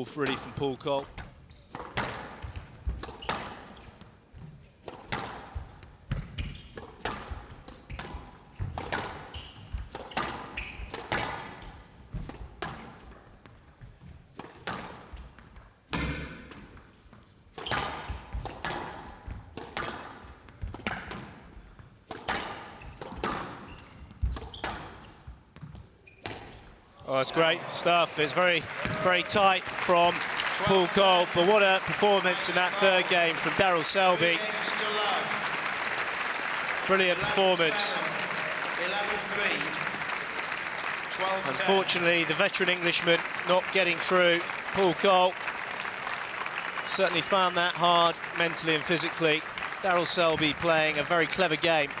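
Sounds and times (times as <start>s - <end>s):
squash ball hits echoing: 4.9s - 13.0s, 15.9s - 16.6s, 17.6s - 21.4s, 22.1s - 23.7s, 28.7s - 30.0s.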